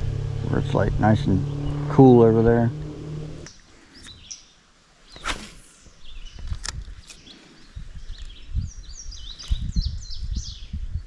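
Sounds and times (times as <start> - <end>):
small birds chirping: 0.5 - 11.0
fishing rod swishing: 5.1 - 6.0.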